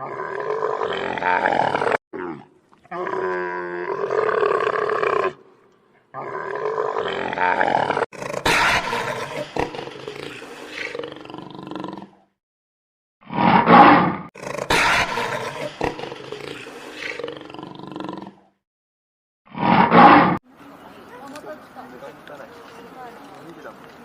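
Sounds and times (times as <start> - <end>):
lion roaring: 0.0 - 5.4, 6.1 - 12.2, 13.4 - 18.5.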